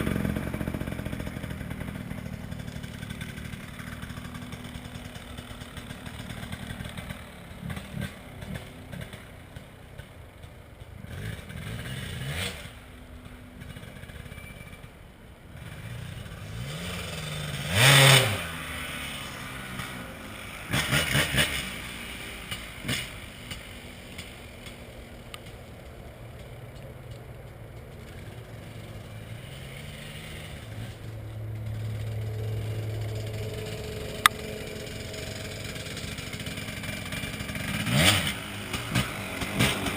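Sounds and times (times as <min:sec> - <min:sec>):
dirt bike engine revving: 0:00.0 - 0:09.3, 0:11.0 - 0:12.8, 0:15.6 - 0:25.1, 0:28.0 - 0:39.9.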